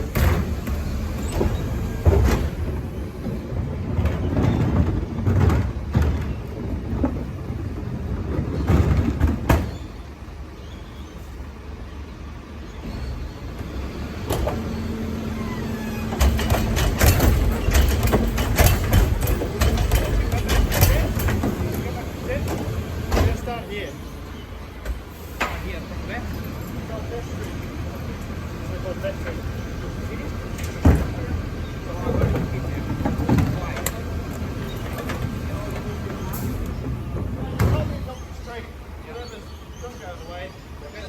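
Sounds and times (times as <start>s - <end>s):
sharp knocks and clanks: 0.0s - 9.9s, 15.5s - 23.6s, 30.5s - 31.3s, 31.9s - 38.2s
garbage truck engine rumble: 0.0s - 41.0s.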